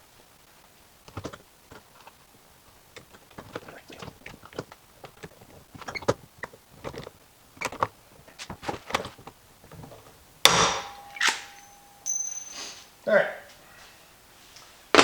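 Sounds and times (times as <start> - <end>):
loud sharp snap: 10.5 - 11.9.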